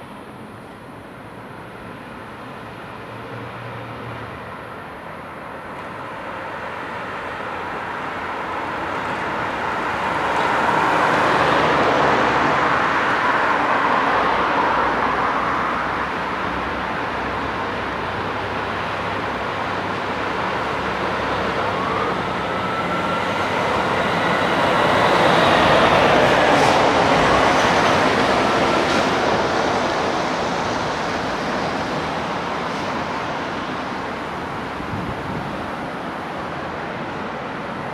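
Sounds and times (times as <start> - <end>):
road traffic passing: 0.0 - 37.9.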